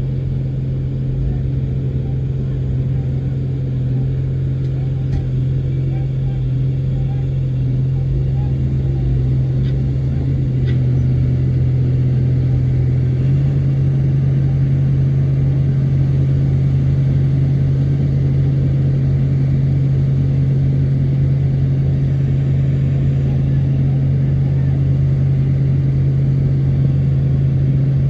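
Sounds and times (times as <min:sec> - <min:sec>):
diesel engine humming: 0:00.0 - 0:28.0.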